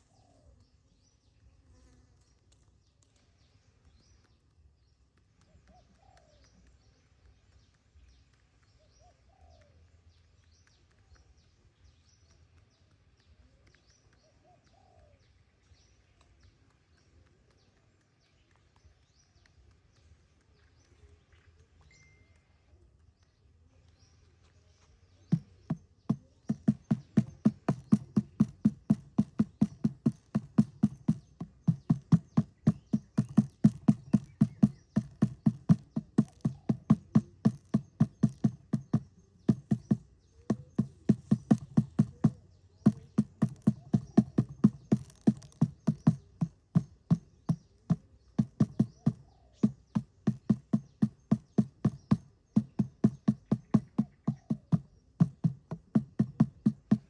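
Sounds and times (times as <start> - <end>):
rapid regular knocking: 25.3 - 57.0.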